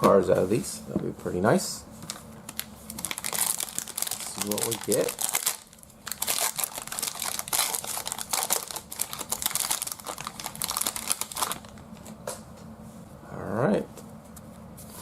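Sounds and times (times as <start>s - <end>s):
plastic wrapper crinkling torn open: 2.1s - 12.1s.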